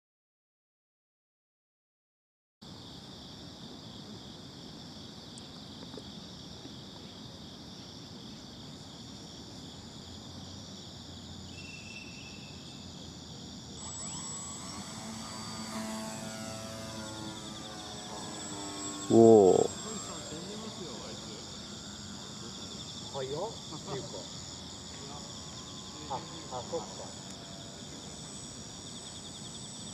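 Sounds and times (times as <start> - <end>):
insect chorus: 2.6 - 29.9
model aircraft propeller motor whine: 13.6 - 29.9.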